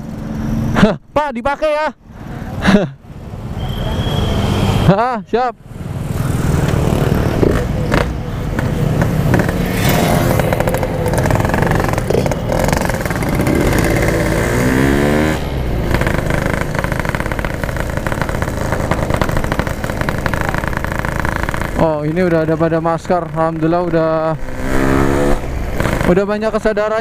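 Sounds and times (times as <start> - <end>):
motorcycle engine revving: 5.7 - 27.0.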